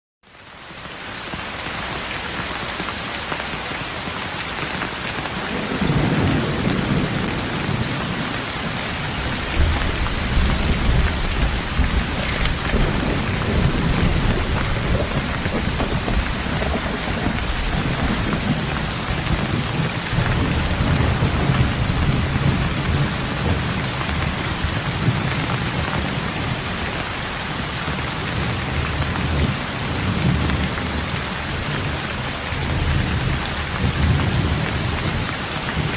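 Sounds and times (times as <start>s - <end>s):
rain falling on a road: 0.2s - 35.9s
low rolling thunder: 5.4s - 26.8s.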